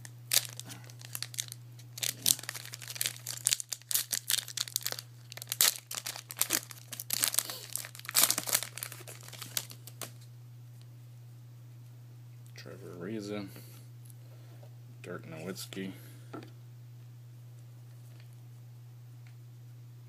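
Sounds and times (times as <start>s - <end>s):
card pack wrapper crinkling: 0.0s - 10.3s
steady low hum: 0.0s - 20.0s.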